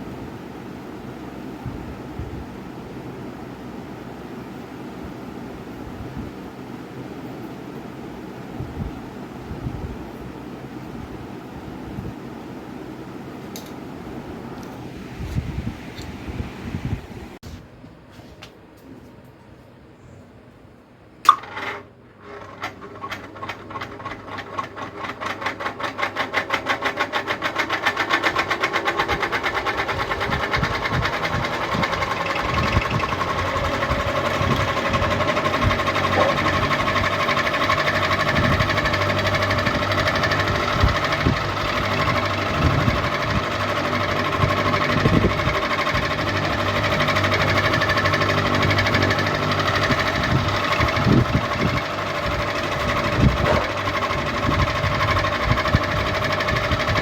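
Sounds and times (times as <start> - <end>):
ceiling fan running: 0.0 - 57.0
rhythmic ticking of fan: 21.2 - 57.0.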